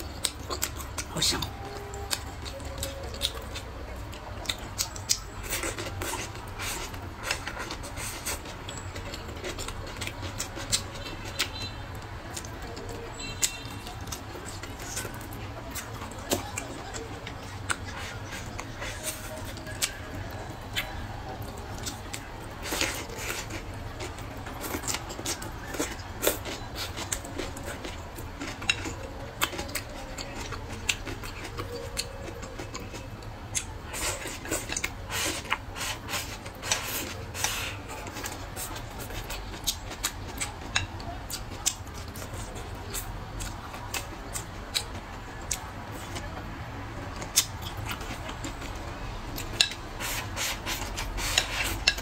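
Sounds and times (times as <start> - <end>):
wet chewing and lip-smacking: 0.0 - 52.0
chopsticks clicking on a bowl: 49.4 - 52.0.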